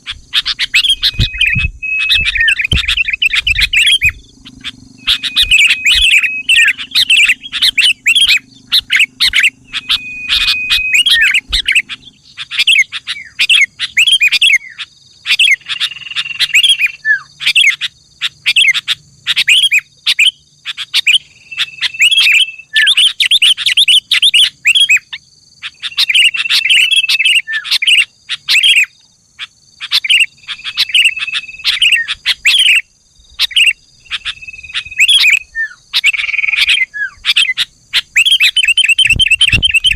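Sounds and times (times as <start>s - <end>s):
bulbul singing chirpy phrases: 0.0s - 39.9s
bird whistle note: 0.5s - 12.0s.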